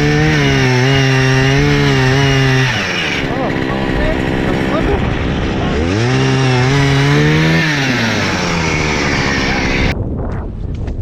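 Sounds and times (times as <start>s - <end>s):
ice auger two-stroke engine revving: 0.0s - 10.0s
wind noise on microphone: 3.5s - 11.0s.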